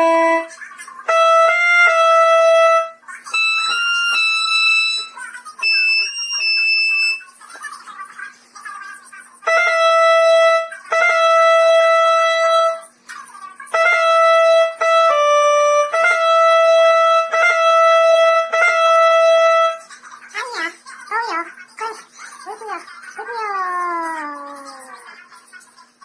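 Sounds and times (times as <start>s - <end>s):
held keyboard notes: 0.0s - 7.2s, 9.4s - 12.9s, 13.7s - 19.9s.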